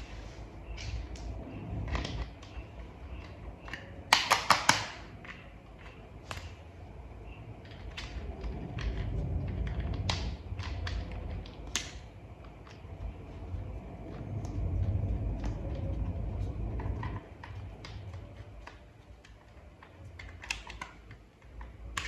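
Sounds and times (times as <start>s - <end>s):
plastic toy parts clicking: 3.2s - 6.6s, 7.6s - 12.0s, 17.4s - 22.0s.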